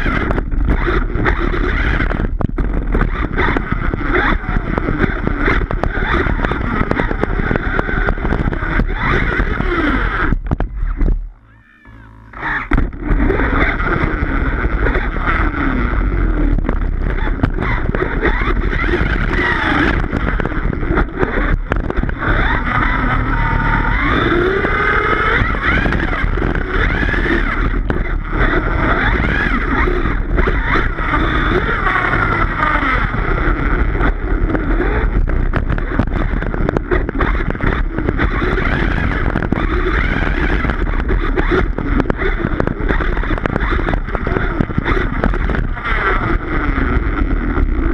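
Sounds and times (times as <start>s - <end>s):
electric motor whine: 0.0s - 47.9s
tire and drive noise: 0.0s - 47.9s.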